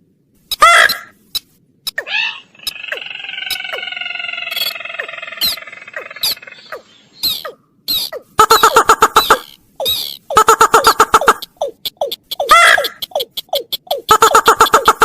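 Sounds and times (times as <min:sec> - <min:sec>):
sharp falling bird chirps: 0:01.9 - 0:10.3
rattling bird call: 0:01.9 - 0:15.0
quick clicking bird notes: 0:10.8 - 0:15.0.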